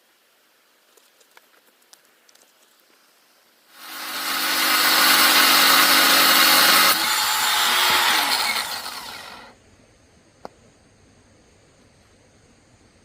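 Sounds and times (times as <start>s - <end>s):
power tool rasping: 3.8s - 9.5s.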